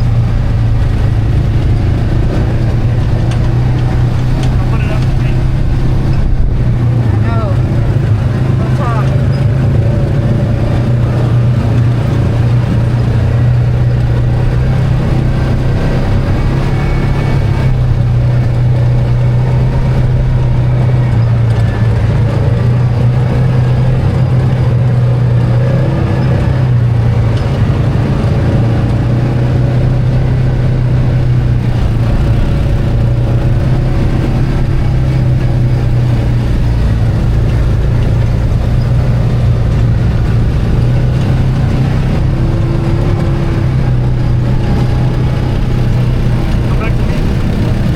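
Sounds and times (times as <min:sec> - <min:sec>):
atv engine running: 0:00.0 - 0:47.9.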